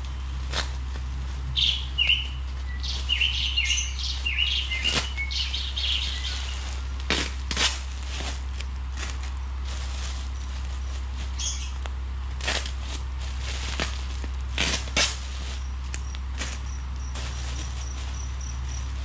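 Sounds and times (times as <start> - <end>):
steady low hum: 0.0 - 19.0
small birds chirping: 0.1 - 7.2, 8.6 - 12.0, 15.3 - 19.0.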